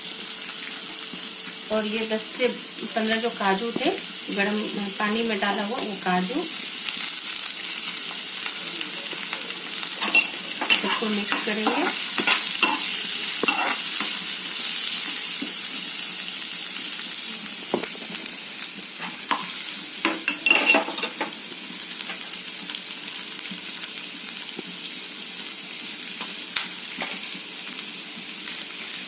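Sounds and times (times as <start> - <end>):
onions sizzling in oil: 0.0 - 29.0
spatula scraping a pan: 10.0 - 14.3.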